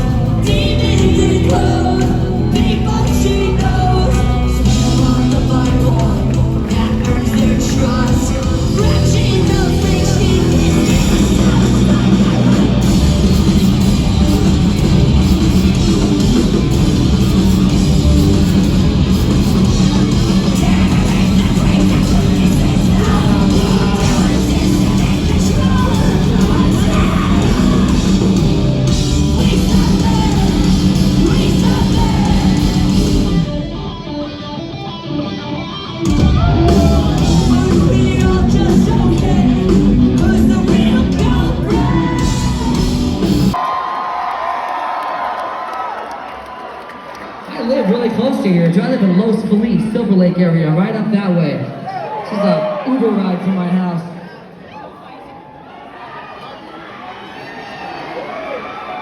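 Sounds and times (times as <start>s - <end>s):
crowd cheering: 0.0s - 34.4s, 35.1s - 50.3s, 51.6s - 59.0s
live rock band playing: 0.0s - 43.6s.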